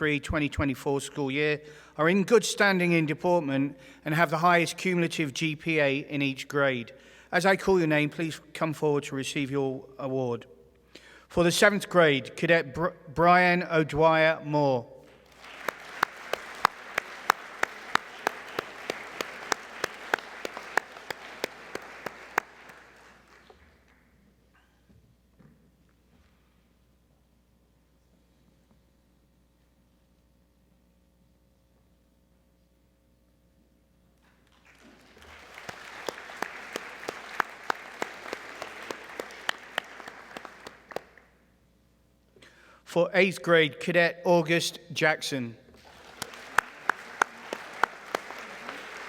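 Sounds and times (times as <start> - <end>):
loud evenly paced claps: 15.0 - 24.1, 34.2 - 41.4, 45.7 - 49.0
audience applauding: 15.1 - 24.1, 34.5 - 41.3, 45.8 - 49.0.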